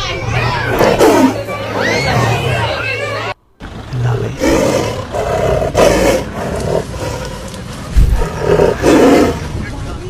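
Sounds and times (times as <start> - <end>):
angry cat growling: 4.1 - 9.5.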